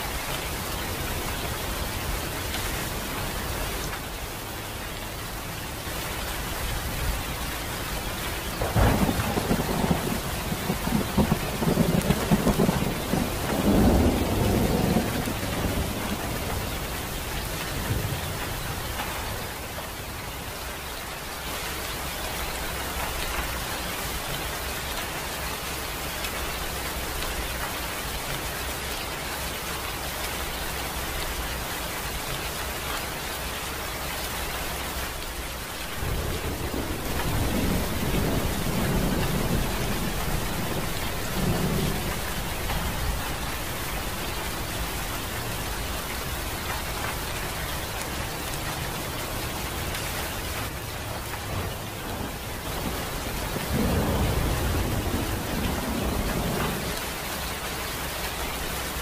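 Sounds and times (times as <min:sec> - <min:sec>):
steady rain falling: 0:00.0 - 0:59.0
low thunder rumble: 0:08.5 - 0:18.9, 0:35.3 - 0:47.8, 0:51.4 - 0:57.0.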